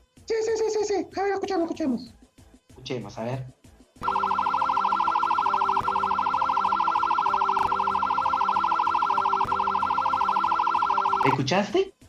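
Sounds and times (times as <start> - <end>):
ambulance siren warbling: 4.0 - 11.5.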